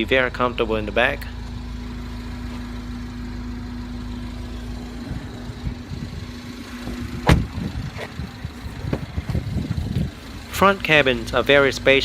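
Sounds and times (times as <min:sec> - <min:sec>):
handling knocks in a car: 0:06.8 - 0:08.1, 0:08.7 - 0:09.8.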